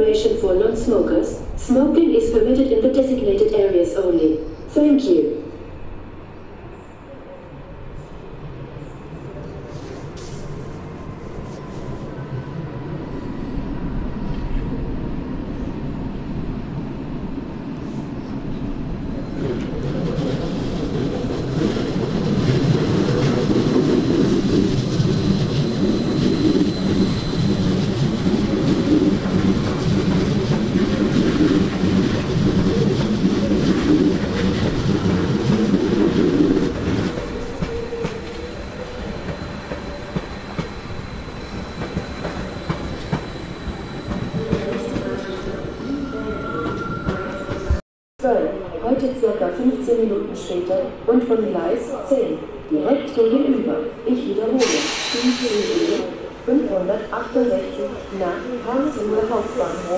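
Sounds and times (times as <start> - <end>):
train rumble and wheel clatter: 0.0 - 47.8, 48.6 - 59.9
high-pitched wheel squeal: 22.8 - 31.6, 37.2 - 47.8.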